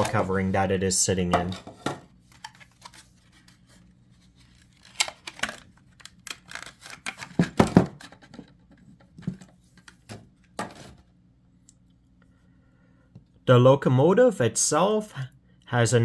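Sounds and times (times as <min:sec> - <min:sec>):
plastic packaging crinkling: 0:02.3 - 0:07.5.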